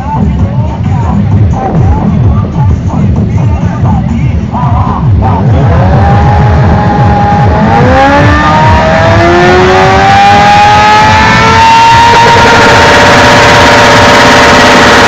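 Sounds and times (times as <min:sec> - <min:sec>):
motorcycle engine revving hard: 0:05.2 - 0:15.0.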